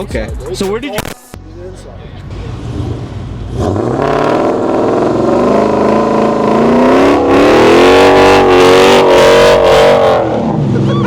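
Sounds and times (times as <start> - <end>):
car engine revving: 2.2 - 11.0.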